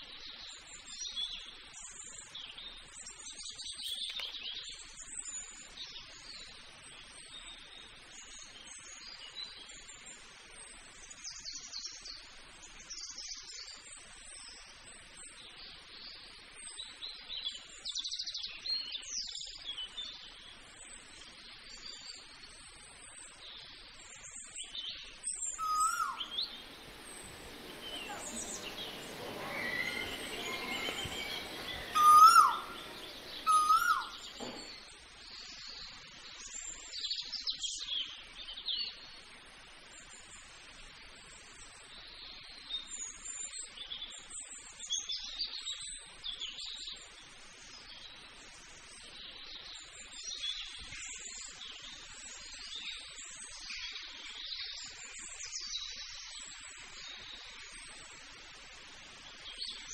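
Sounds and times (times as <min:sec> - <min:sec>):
small birds chirping: 0:00.0 - 0:39.4
bird giving sharp calls: 0:25.6 - 0:34.3.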